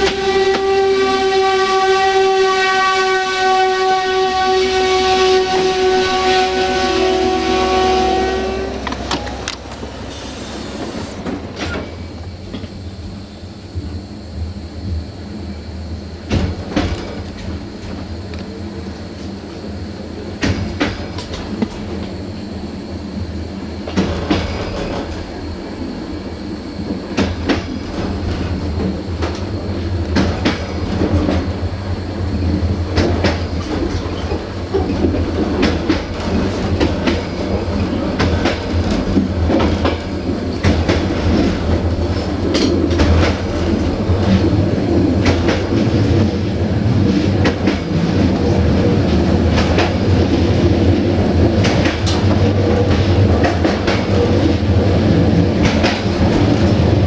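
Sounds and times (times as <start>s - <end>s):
train rumble: 0.0s - 57.0s
train wheels clicking over rail joints: 8.7s - 12.8s, 16.3s - 18.6s, 20.4s - 22.1s, 23.8s - 25.4s, 27.0s - 31.6s, 32.4s - 57.0s.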